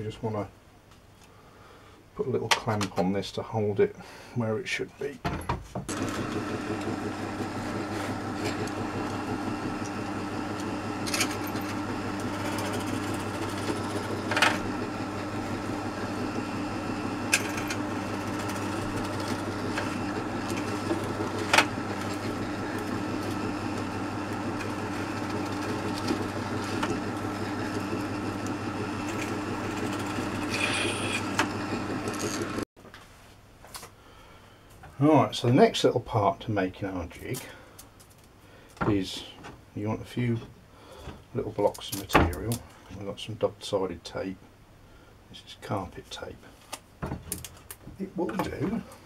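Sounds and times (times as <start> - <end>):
electric drill running: 5.9 - 32.6.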